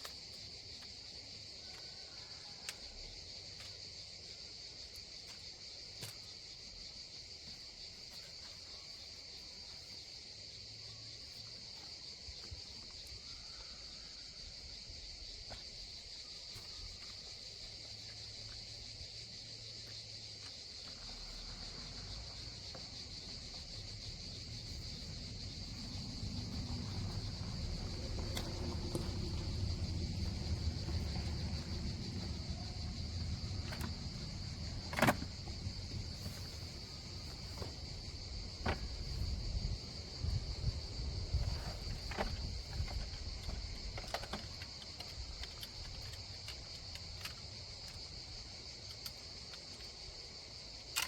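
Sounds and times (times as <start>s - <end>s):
insect chorus chirring: 0.0s - 51.0s
low rumble: 23.4s - 36.2s.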